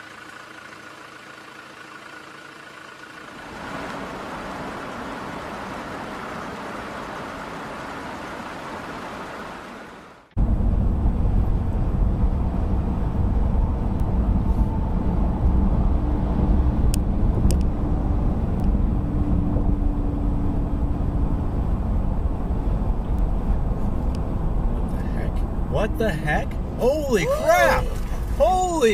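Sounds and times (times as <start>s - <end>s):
car road and engine noise: 0.0s - 28.9s
low rumble: 10.4s - 25.7s.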